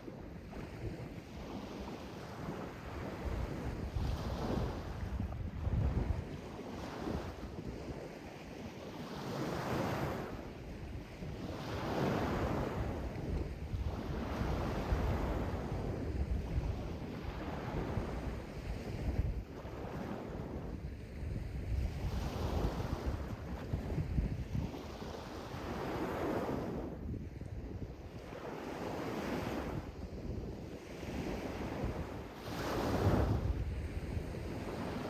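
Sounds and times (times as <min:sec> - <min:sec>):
wind rumbling on microphone: 0:00.0 - 0:35.0
sea waves washing in: 0:30.8 - 0:35.0.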